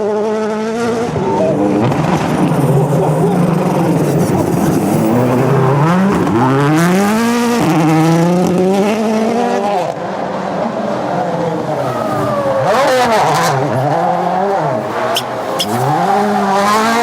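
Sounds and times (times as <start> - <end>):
rally car engine accelerating: 0.0 - 17.0.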